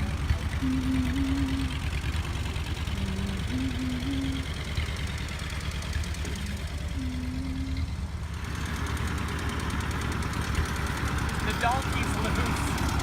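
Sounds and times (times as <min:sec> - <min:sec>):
old tractor engine running: 0:00.0 - 0:13.0.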